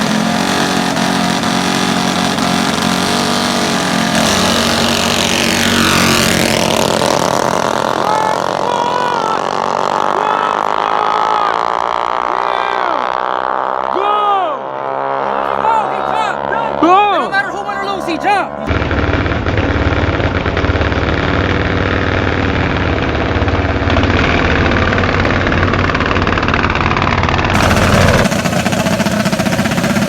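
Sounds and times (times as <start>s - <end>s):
mini bike engines running hard: 0.0s - 30.0s
person shouting: 7.8s - 11.7s, 12.3s - 13.1s, 13.9s - 18.7s.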